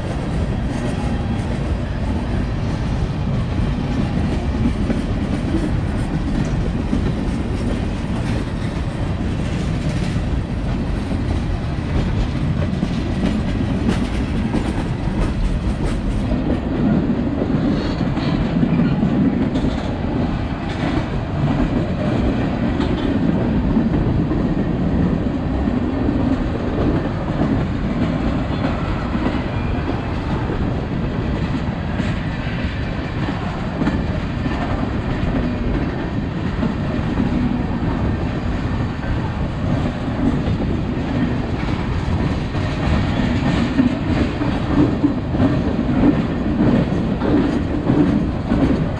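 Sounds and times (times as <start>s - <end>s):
steel wheels rumbling on rails: 0.0s - 48.9s.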